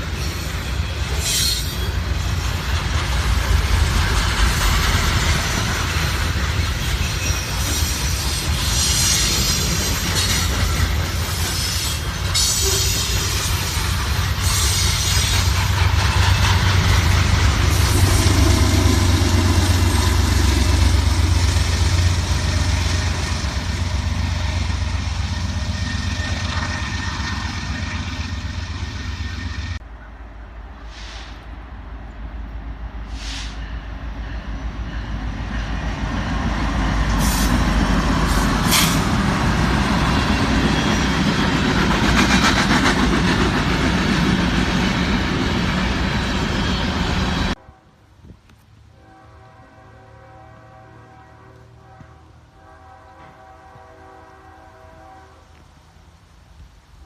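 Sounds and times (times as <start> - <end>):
train wheels rumbling on rail: 0.0 - 29.9, 30.5 - 57.0.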